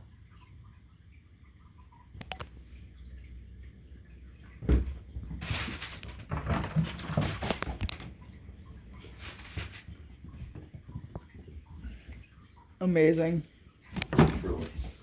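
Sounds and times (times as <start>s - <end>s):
thump: 4.6s - 5.0s.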